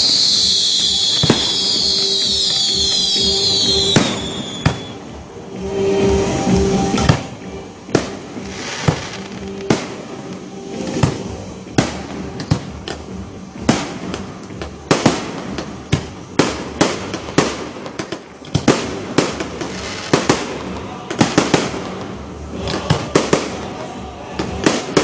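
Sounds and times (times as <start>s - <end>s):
firework crackling: 0.0s - 13.0s, 13.6s - 25.0s
firework shells bursting: 8.0s - 10.0s.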